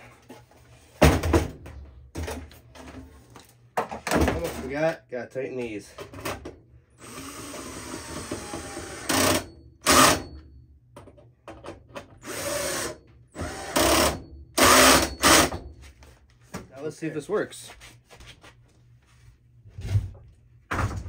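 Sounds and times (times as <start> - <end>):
power drill driving screws: 7.0 - 10.3, 12.2 - 15.6.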